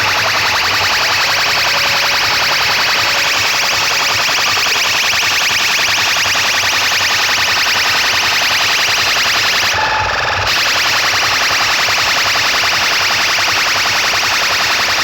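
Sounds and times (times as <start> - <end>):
distorted pulsing electronic horn: 0.0 - 11.3.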